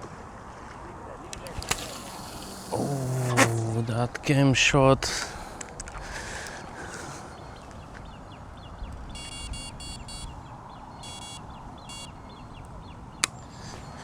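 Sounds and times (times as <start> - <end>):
small birds chirping: 6.5 - 14.0
bite alarm beeping: 9.2 - 10.3, 11.0 - 12.2.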